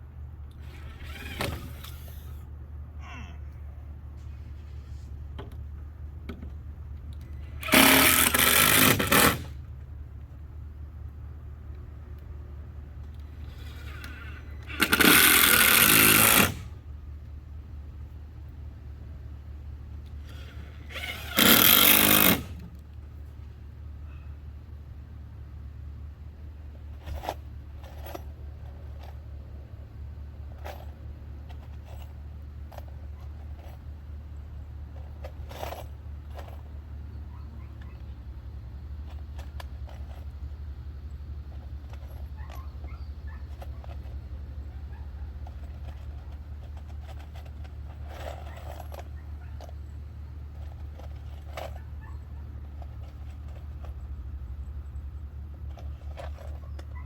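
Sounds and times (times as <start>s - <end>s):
power drill driving screws into wood: 0.6s - 2.4s, 7.6s - 9.6s, 13.5s - 16.8s, 20.2s - 22.7s
scraping on wooden boards: 7.6s - 9.6s, 13.4s - 16.8s.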